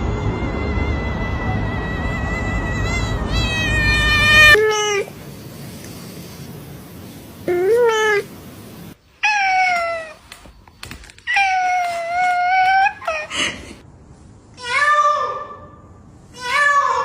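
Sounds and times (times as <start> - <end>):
cat meowing: 3.3 - 5.1, 9.2 - 10.3.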